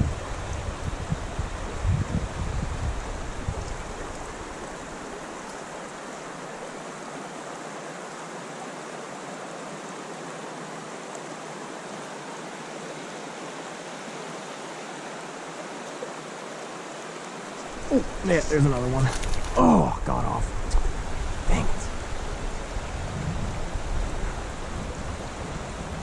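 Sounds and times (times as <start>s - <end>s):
wind rumble on microphone: 0.0s - 5.1s, 17.7s - 26.0s
creek water running: 0.0s - 26.0s.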